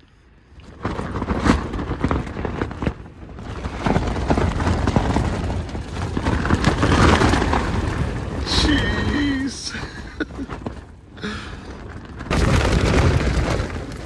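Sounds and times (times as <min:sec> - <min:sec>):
wind rumbling: 0:00.3 - 0:14.0
tent fabric slapping: 0:00.6 - 0:09.4, 0:12.1 - 0:14.0.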